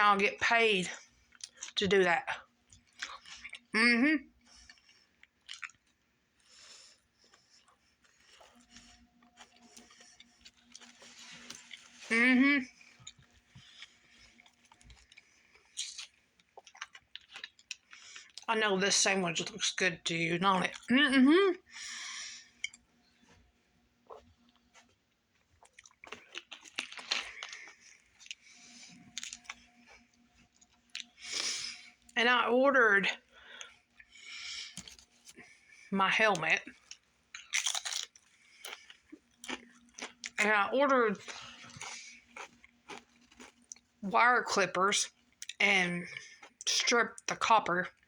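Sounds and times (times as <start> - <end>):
low steady hum: 0.0 - 48.0
person chewing a sandwich: 0.9 - 1.8, 2.4 - 3.7, 4.3 - 18.5, 21.8 - 32.2, 33.2 - 35.9, 36.7 - 40.4, 41.2 - 44.0, 45.1 - 46.7.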